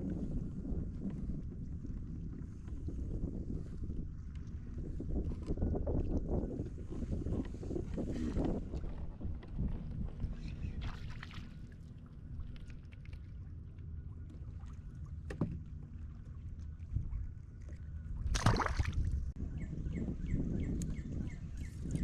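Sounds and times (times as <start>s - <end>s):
wind and water rumble: 0.0s - 22.0s.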